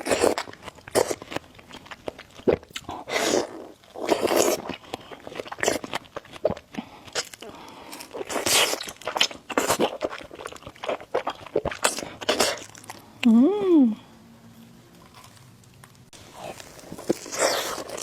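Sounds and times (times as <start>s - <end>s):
person chewing noodles: 0.0s - 13.3s, 16.2s - 18.0s
noisy slurps: 2.4s - 13.1s, 16.3s - 18.0s.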